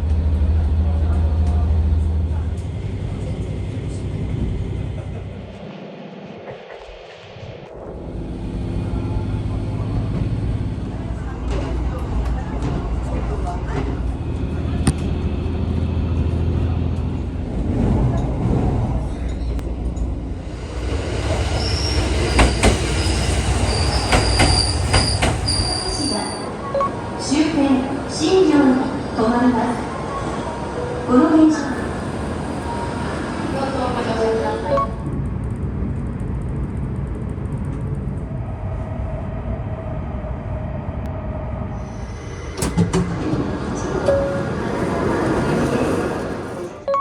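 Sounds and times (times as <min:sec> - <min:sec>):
train rolling rumble: 0:00.0 - 0:47.0
wheels squealing on rail: 0:21.3 - 0:26.5.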